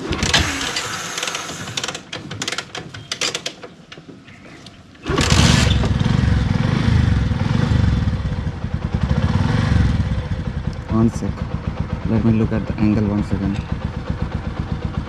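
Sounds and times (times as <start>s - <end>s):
small motorcycle engine idling: 5.1s - 15.0s.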